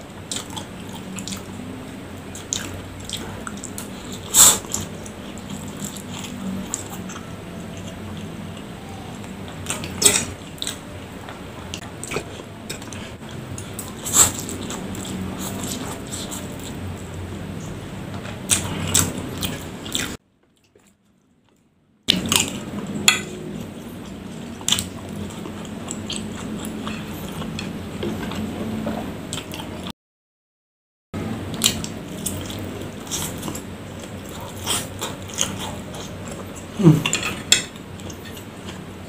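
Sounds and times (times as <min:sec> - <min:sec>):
chewing noodles: 0:31.6 - 0:38.8.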